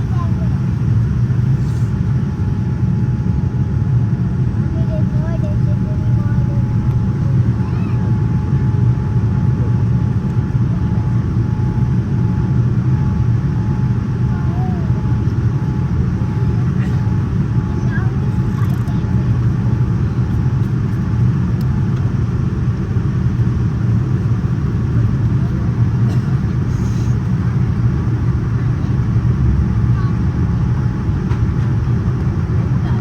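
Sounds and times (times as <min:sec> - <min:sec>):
aircraft engine rumble: 0:00.0 - 0:33.0
airflow in aircraft cabin: 0:00.0 - 0:33.0.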